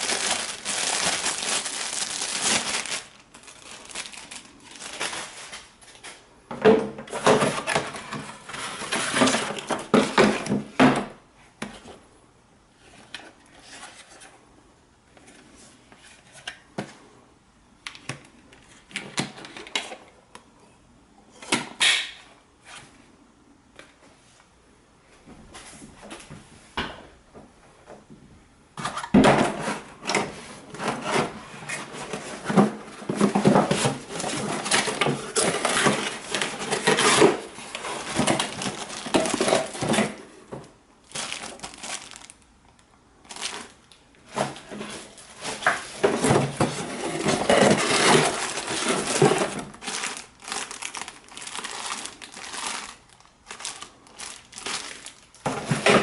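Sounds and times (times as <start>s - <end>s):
plastic packaging crinkling: 0.0s - 6.1s, 31.7s - 40.4s, 41.0s - 56.0s.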